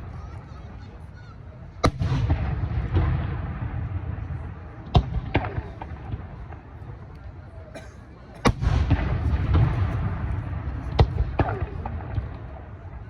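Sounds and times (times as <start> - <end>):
firework crackles: 0.0 - 7.5, 8.5 - 13.0
fireworks bangs: 0.0 - 7.6, 8.4 - 13.0
low rolling rumble: 2.0 - 7.4.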